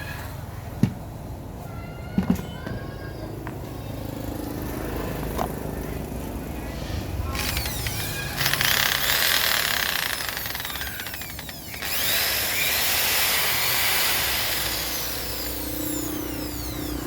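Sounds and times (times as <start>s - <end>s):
power tool hissing and whining: 7.4s - 17.0s.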